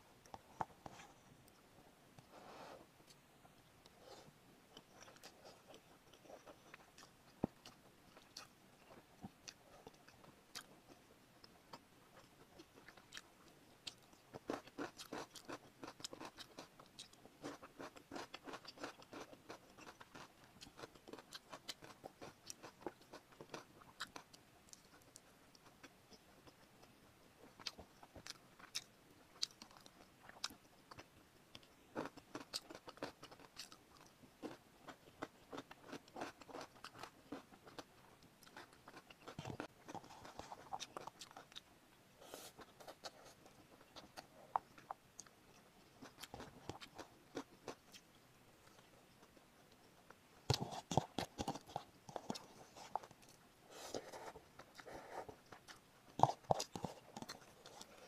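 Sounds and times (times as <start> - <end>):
chewing noodles: 4.7 - 41.7, 42.3 - 49.4, 50.5 - 58.0.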